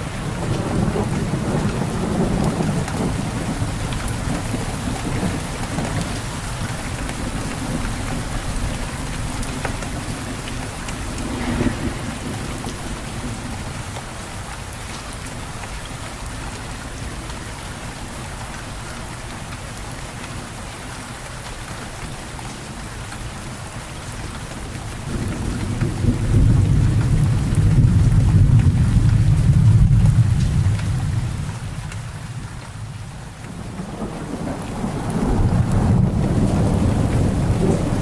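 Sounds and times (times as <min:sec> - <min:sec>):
low rumble of thunder: 0:00.0 - 0:14.3, 0:25.0 - 0:38.0
rain falling: 0:00.0 - 0:38.0.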